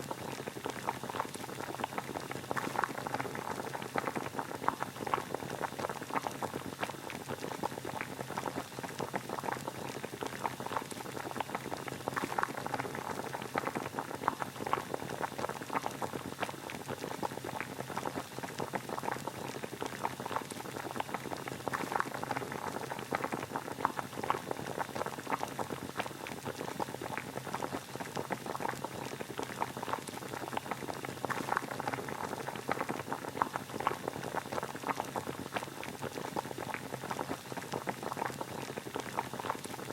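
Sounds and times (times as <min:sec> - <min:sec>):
water boiling: 0:00.0 - 0:39.9.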